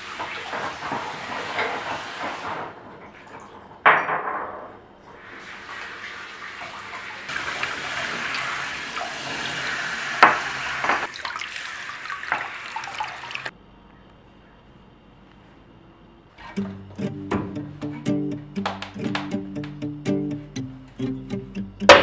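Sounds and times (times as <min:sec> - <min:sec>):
tap running into a sink: 0:07.3 - 0:11.4, 0:12.2 - 0:13.5.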